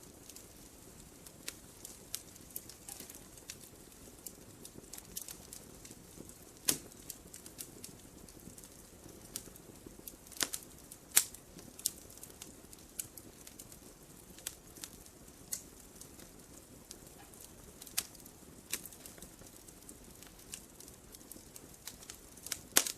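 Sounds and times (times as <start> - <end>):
faint steady hiss: 0.0 - 22.9
firewood crackling and popping: 0.0 - 22.9.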